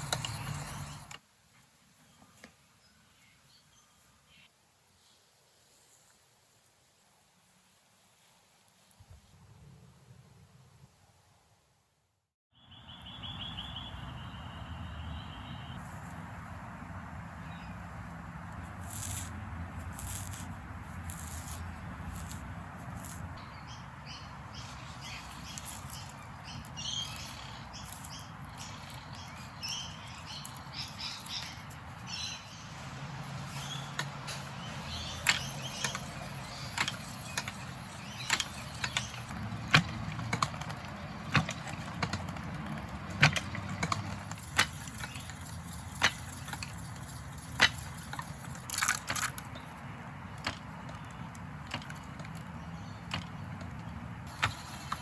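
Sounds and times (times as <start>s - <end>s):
high chirping: 12.6s - 15.8s, 23.4s - 39.3s.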